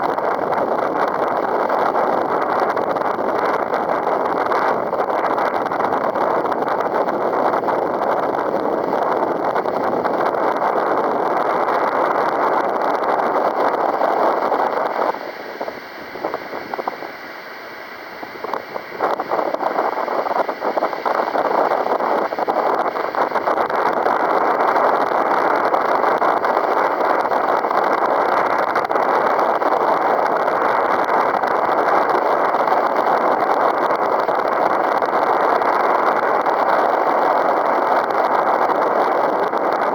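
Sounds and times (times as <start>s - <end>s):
strong wind buffeting microphone: 0.0s - 39.9s.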